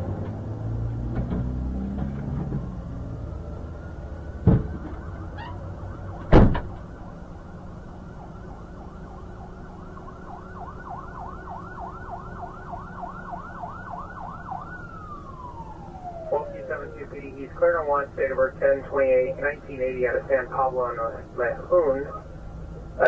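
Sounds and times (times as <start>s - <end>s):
emergency vehicle siren: 0.0s - 23.0s
loud thump: 4.4s - 5.0s, 6.3s - 6.8s.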